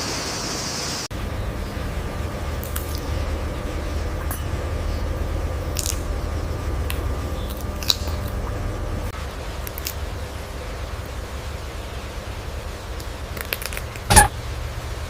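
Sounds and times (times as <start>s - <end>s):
low rumble: 1.1s - 15.0s
sharp clicks and snaps: 5.7s - 6.1s, 9.6s - 10.0s, 13.0s - 14.3s.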